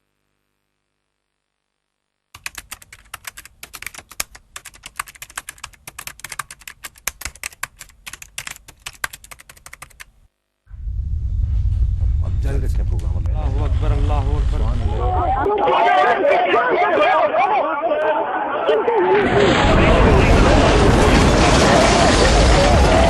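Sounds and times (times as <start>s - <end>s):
rapid irregular clicking: 2.4s - 10.1s.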